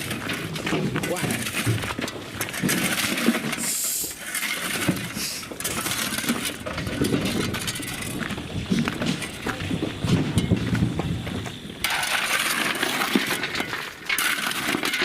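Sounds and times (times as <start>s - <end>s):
stone clattering while unloaded: 0.0s - 15.0s.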